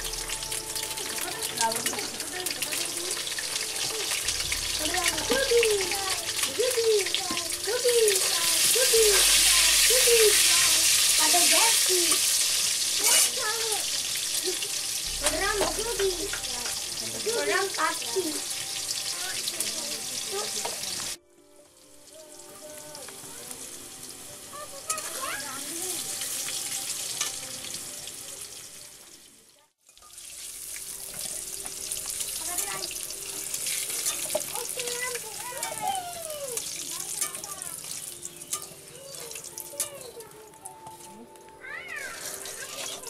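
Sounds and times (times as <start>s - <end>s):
vegetables sizzling in hot oil: 0.0s - 43.0s
metal spatula clinking: 33.5s - 34.6s.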